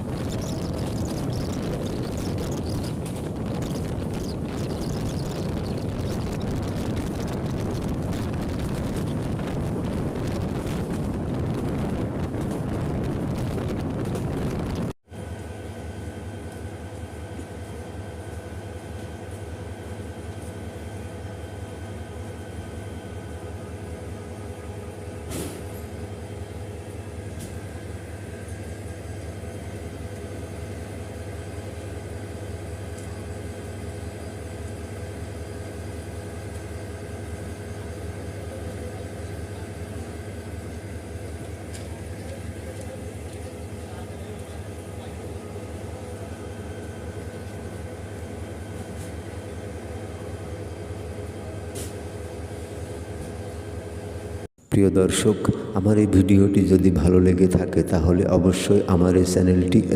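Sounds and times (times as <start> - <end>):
train rumbling and rattling: 0.0 - 14.9
diesel engine hum: 0.0 - 15.0.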